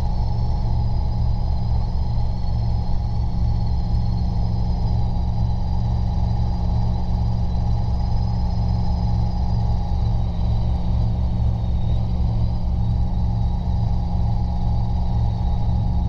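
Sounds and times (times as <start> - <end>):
faint high whine: 0.0 - 16.0
helicopter rotor and engine drone: 0.0 - 16.0.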